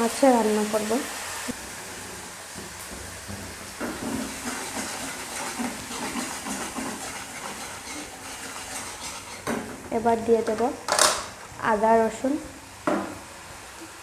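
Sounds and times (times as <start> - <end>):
onion paste sizzling in hot oil: 0.0 - 14.0
spatula scraping a pan: 1.8 - 9.8.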